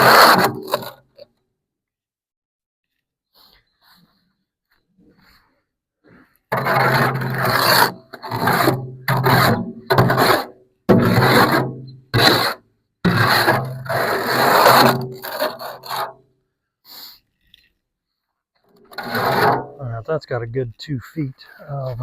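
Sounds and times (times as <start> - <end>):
hand tool scraping mortar: 0.0 - 1.2, 6.5 - 16.2, 18.8 - 19.8.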